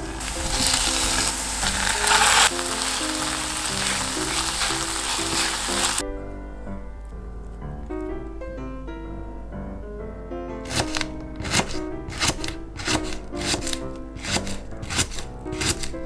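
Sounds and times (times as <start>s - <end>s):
food sizzling in a frying pan: 0.0s - 6.0s
light background music: 0.0s - 16.0s.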